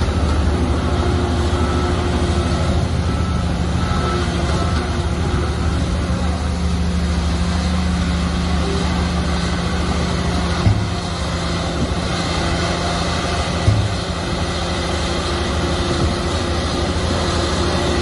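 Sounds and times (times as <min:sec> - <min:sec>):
diesel machinery running: 0:00.0 - 0:18.0.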